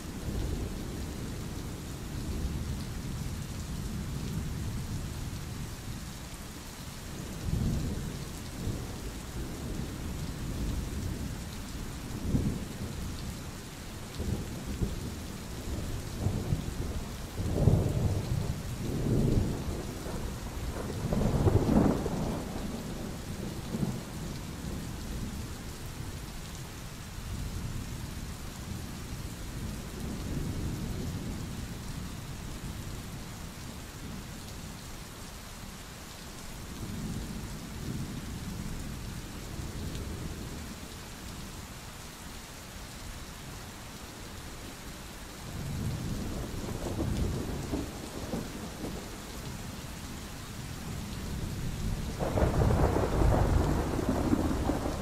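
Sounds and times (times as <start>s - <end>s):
steady rain: 0.0s - 55.0s
rolling thunder: 50.9s - 55.0s.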